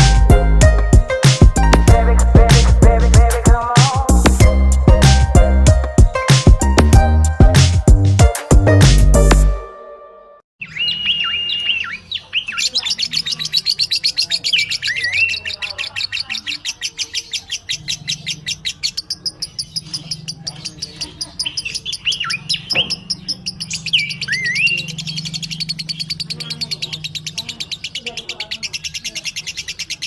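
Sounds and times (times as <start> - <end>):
whistled notes dropping in pitch: 9.2 - 12.1.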